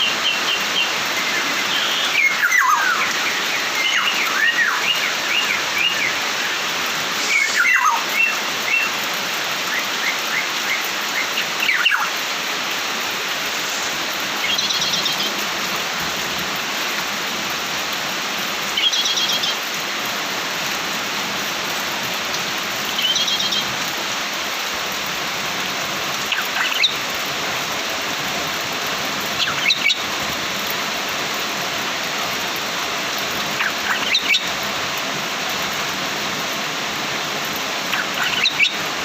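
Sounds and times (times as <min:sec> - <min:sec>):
songbird chirping: 0:00.0 - 0:06.6, 0:07.2 - 0:09.0, 0:09.7 - 0:12.2, 0:14.4 - 0:15.4, 0:33.6 - 0:34.6, 0:37.9 - 0:38.8
steady hiss: 0:00.0 - 0:39.0.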